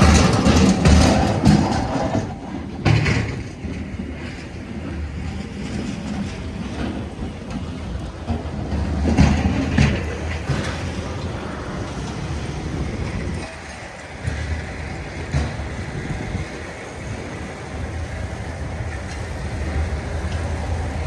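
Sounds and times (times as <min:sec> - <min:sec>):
rumble of passing vehicles: 0:00.0 - 0:21.0.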